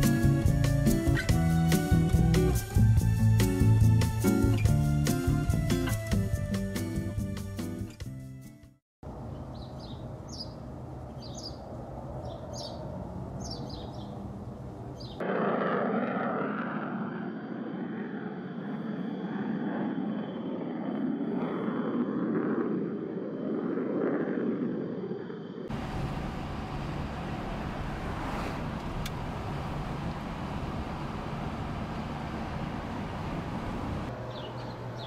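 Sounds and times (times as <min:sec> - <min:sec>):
jet airliner taking off: 0:15.2 - 0:34.1
road and tyre noise inside vehicle: 0:25.7 - 0:35.0.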